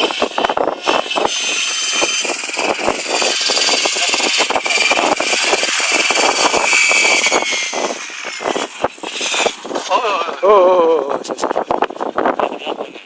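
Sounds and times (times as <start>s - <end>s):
model helicopter rotor whine: 0.0s - 10.4s
wind buffeting microphone: 0.0s - 13.0s.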